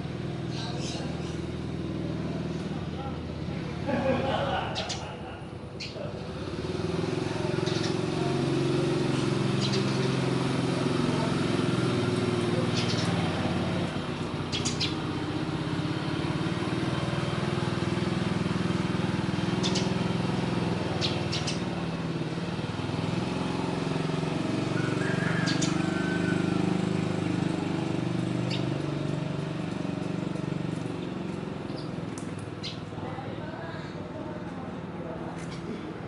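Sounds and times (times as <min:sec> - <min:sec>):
motor engine humming: 0:00.0 - 0:36.0
high bird chirps: 0:09.5 - 0:10.1, 0:12.7 - 0:13.2, 0:14.5 - 0:15.0, 0:19.5 - 0:20.1, 0:20.9 - 0:21.7, 0:25.0 - 0:26.2, 0:28.4 - 0:28.8, 0:31.6 - 0:32.0, 0:32.6 - 0:32.9.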